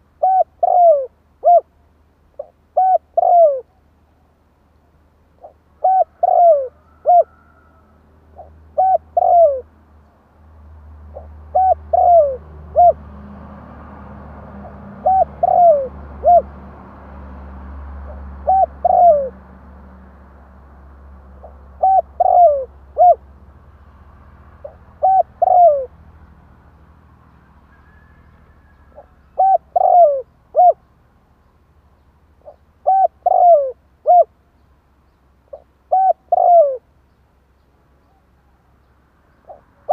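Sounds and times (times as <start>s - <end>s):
dove cooing: 0.0s - 1.7s, 2.4s - 3.8s, 5.4s - 9.7s, 11.1s - 13.0s, 14.6s - 16.6s, 18.1s - 19.4s, 21.4s - 23.3s, 24.6s - 26.0s, 27.8s - 30.9s, 32.4s - 34.3s, 35.5s - 36.9s, 39.4s - 39.9s.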